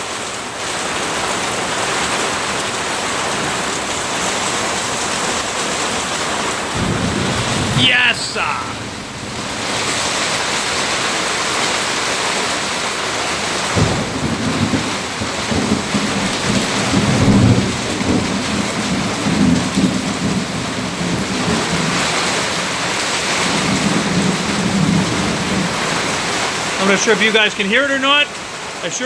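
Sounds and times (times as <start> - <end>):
heavy rain pouring: 0.0 - 29.0
thunder rumbling: 6.6 - 11.9, 13.4 - 22.0.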